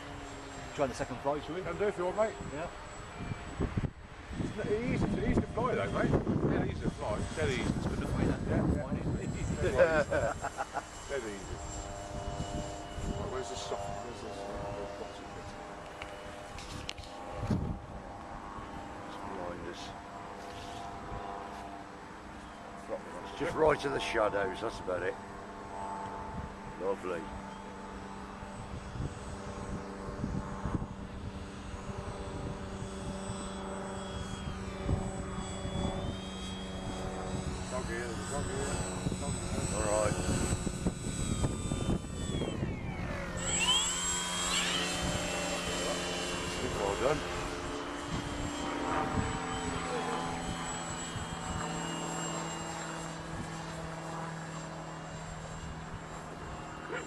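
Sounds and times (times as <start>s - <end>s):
model plane motor whine: 0.0s - 57.0s
wind rumbling on microphone: 3.2s - 10.6s, 11.4s - 15.7s, 16.4s - 19.4s, 28.5s - 52.4s.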